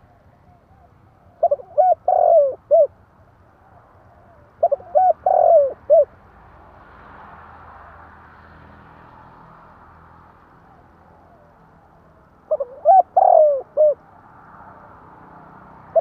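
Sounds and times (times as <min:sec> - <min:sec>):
dove cooing: 0:00.0 - 0:03.0, 0:03.6 - 0:06.1, 0:11.1 - 0:14.1.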